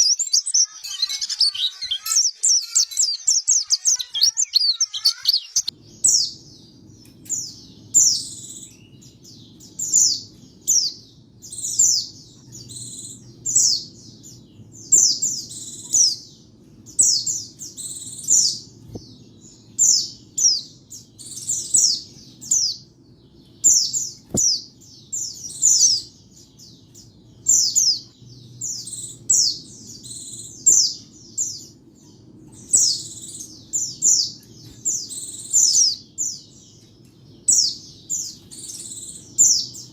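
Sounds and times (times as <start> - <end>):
bird twittering: 0.0 - 6.4
faint low hum: 0.0 - 39.9.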